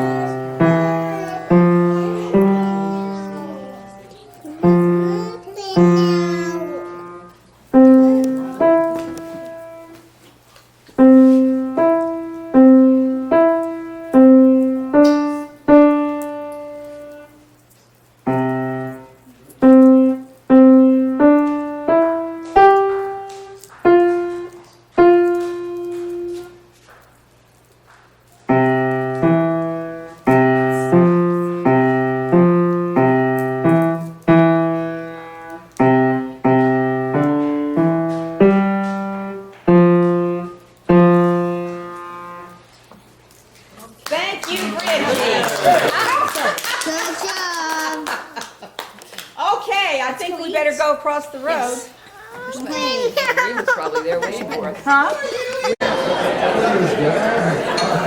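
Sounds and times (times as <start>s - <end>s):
lower piano accompaniment: 0.0s - 10.1s, 11.0s - 17.5s, 18.2s - 26.8s, 28.3s - 42.9s
slow piano melody: 0.0s - 10.2s, 10.9s - 26.9s, 28.2s - 43.3s.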